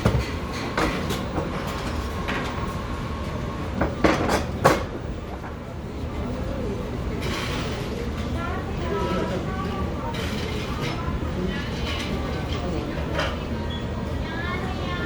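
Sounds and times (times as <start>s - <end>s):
dishes clattering: 0.0s - 1.4s
low cafe rumble: 0.0s - 15.0s.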